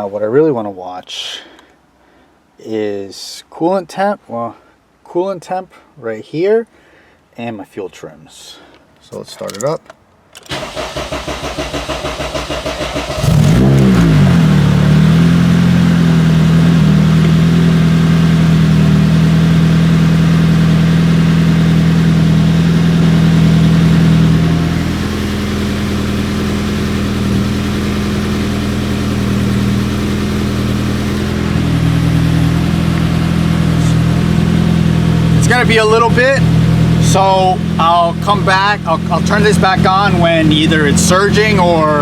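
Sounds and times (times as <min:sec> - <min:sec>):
engine cranking on starter: 0:10.4 - 0:15.2
car engine idling: 0:10.5 - 0:42.0.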